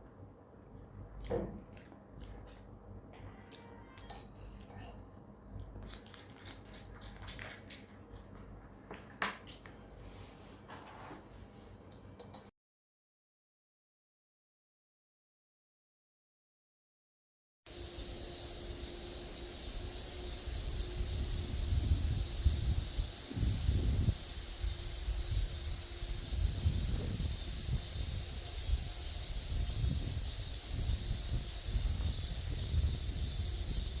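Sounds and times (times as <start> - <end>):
insects chirring: 17.7 - 34.0
wind rumbling on microphone: 20.4 - 34.0.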